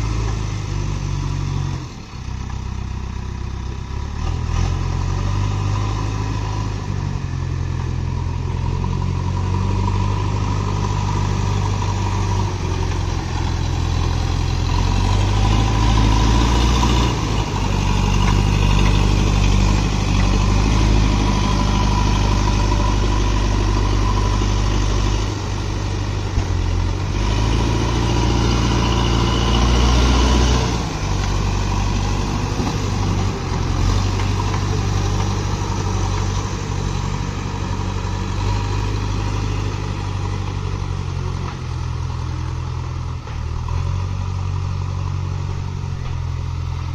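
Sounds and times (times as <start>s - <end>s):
diesel engine revving: 0.0s - 46.9s.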